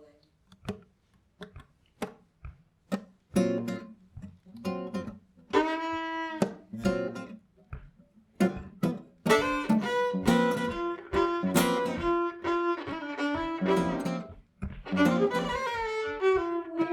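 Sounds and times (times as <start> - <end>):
acoustic guitar plucked chords: 2.9 - 15.6.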